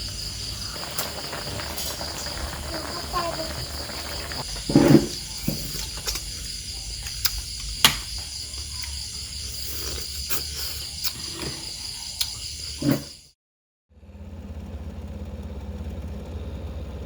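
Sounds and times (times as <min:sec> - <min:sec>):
insects chirring: 0:00.0 - 0:13.3.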